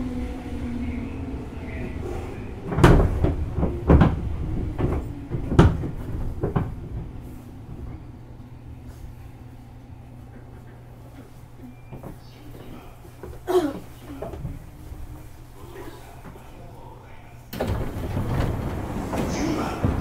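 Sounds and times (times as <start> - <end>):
train low rumble: 0.0 - 20.0
loud clanks and thumps: 2.7 - 7.1, 17.6 - 20.0.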